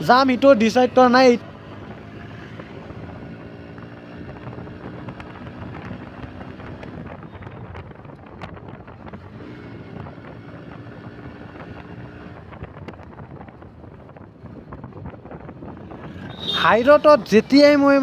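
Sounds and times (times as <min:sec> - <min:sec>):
wind buffeting microphone: 0:12.0 - 0:16.4
motorcycle engine running: 0:12.6 - 0:18.0.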